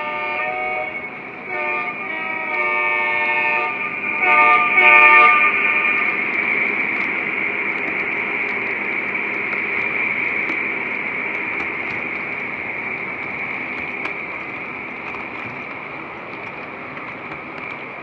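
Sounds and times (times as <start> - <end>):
model train horn blasts: 0.0 - 6.3
model train running on track: 0.0 - 18.0.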